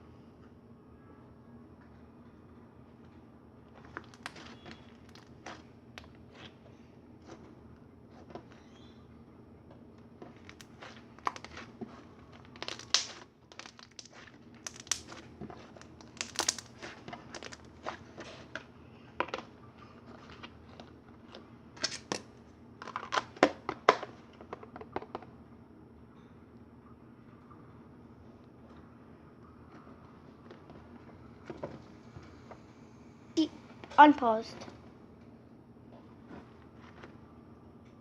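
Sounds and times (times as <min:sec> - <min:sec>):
slime squished by hand: 0:03.7 - 0:06.6, 0:10.3 - 0:22.3.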